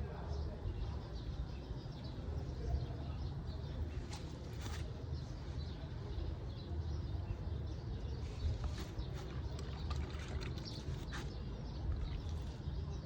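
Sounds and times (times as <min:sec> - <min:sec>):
brief rustles: 0:03.9 - 0:05.0, 0:08.2 - 0:11.5.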